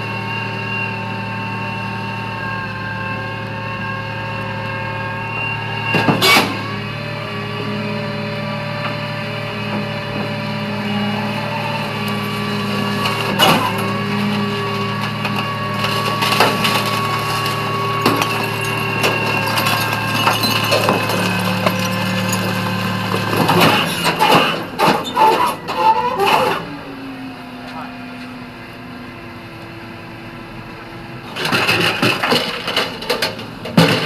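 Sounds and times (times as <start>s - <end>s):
clattering: 12.0s - 26.4s, 31.4s - 34.0s.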